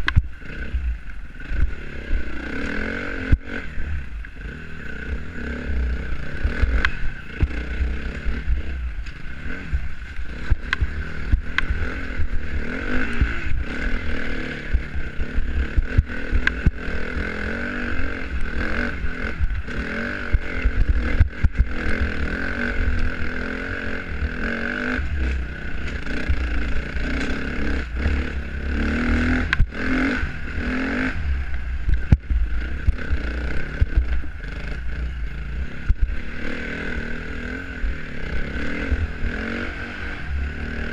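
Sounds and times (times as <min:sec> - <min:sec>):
dirt bike engine revving: 0:00.0 - 0:40.9
low rumble: 0:24.0 - 0:40.9.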